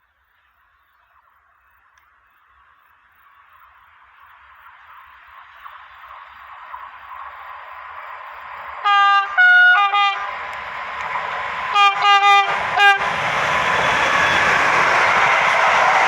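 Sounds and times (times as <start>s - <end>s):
train rolling noise: 0.1s - 16.0s
locomotive horn short blasts: 8.9s - 10.3s, 11.8s - 13.0s.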